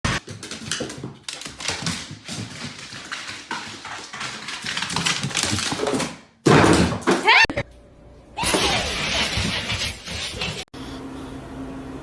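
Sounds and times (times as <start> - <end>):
dog taps and scuffles: 0.2 - 6.1.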